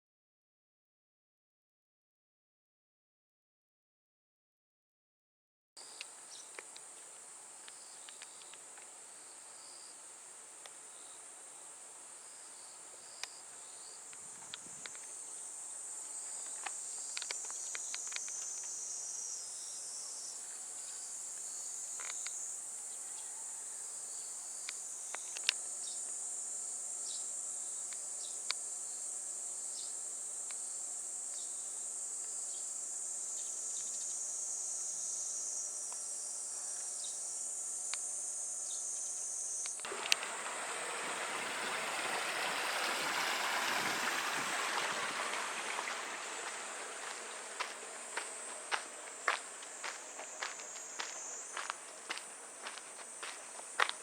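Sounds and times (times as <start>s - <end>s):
faint clicks: 6.0s - 8.9s, 16.4s - 18.8s
insects shrilling: 12.2s - 54.0s
steady low hum: 24.8s - 54.0s.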